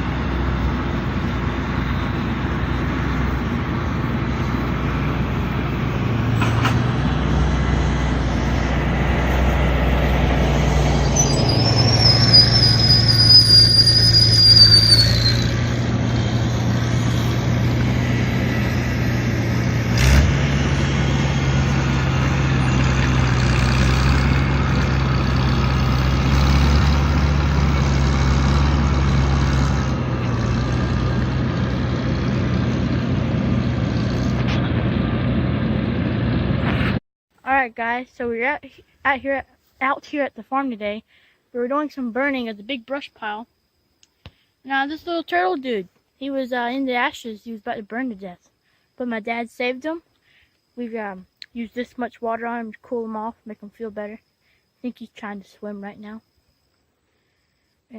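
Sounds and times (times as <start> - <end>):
farm vehicle engine running: 0.0 - 37.0
high wavering squeal: 10.6 - 19.7.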